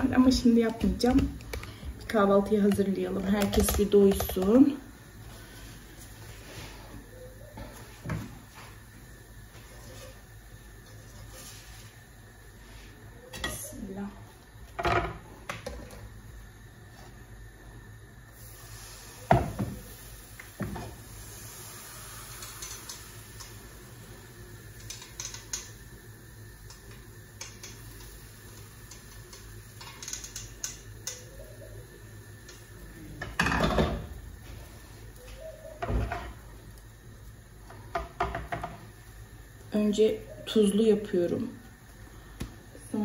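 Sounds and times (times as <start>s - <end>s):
kitchenware knocking and clinking: 33.3s - 34.0s.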